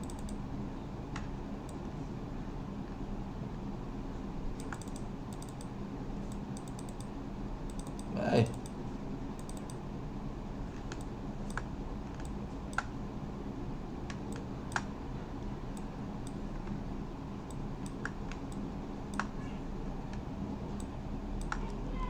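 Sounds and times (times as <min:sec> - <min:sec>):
computer mouse clicks: 0:00.0 - 0:00.4, 0:01.1 - 0:01.8, 0:04.5 - 0:08.8, 0:09.4 - 0:09.8, 0:10.7 - 0:13.0, 0:14.1 - 0:14.9, 0:15.7 - 0:16.8, 0:17.5 - 0:19.4, 0:20.0 - 0:21.8
steady low hum: 0:00.0 - 0:22.0.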